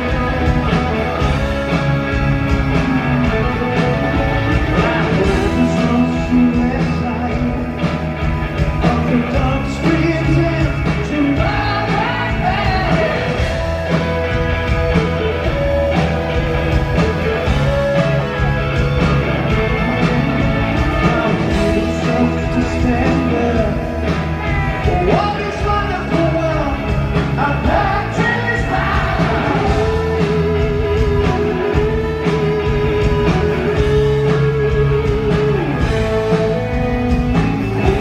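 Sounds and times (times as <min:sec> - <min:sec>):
rock band playing live: 0:00.0 - 0:38.0
lead vocal singing: 0:04.0 - 0:07.7, 0:08.8 - 0:13.8, 0:20.6 - 0:34.1.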